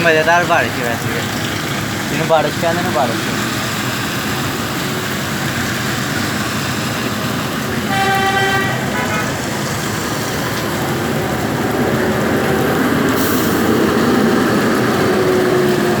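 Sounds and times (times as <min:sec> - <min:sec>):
steady rain: 0:00.0 - 0:16.0
traffic on wet roads: 0:00.0 - 0:16.0
car horn: 0:07.9 - 0:09.4.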